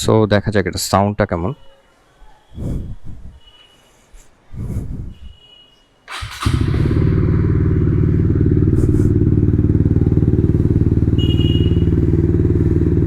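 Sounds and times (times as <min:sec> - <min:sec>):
motorcycle starting and idling: 0:06.1 - 0:13.0.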